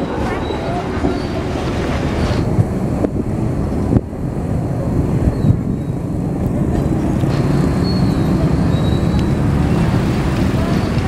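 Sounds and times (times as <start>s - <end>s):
train rumbling on rails: 0.0s - 11.0s
faint high squeal: 7.6s - 9.8s.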